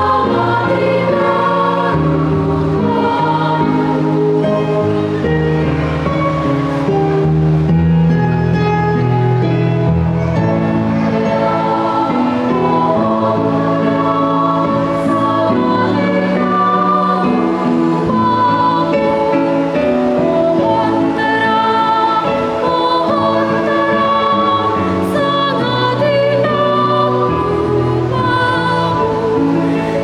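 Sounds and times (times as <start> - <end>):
children's choir singing a carol: 0.0 - 7.7, 9.4 - 30.0.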